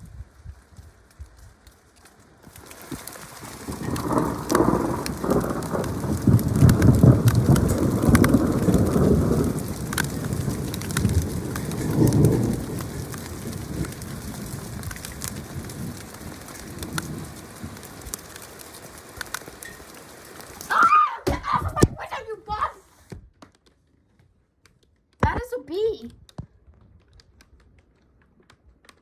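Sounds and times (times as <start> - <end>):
steady rain: 0.0 - 23.8
raindrops ticking on surfaces: 0.0 - 29.0
thunder rumbling: 2.5 - 22.8.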